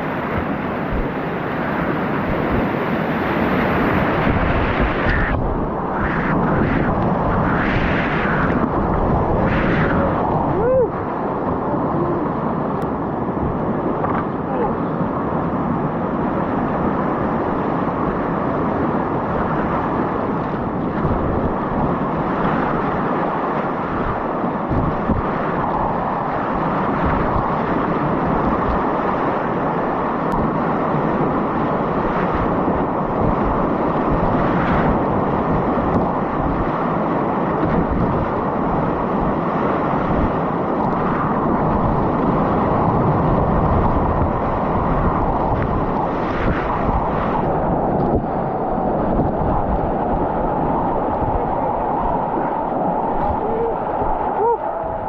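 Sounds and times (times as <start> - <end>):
river rapids rushing: 46.0 - 55.0.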